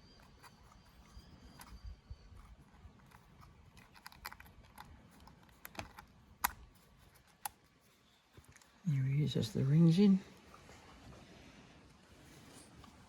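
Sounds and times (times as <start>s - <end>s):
small metal parts clicking: 0.1s - 6.6s.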